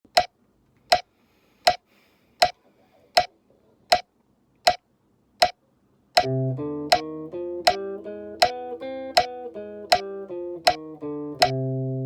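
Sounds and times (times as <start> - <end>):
metronome clicking: 0.1 - 0.3, 4.6 - 4.8, 6.2 - 11.6.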